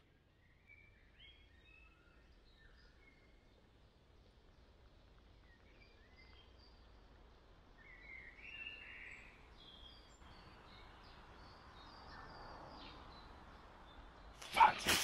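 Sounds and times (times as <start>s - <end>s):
faint bird chirps: 7.7s - 14.9s.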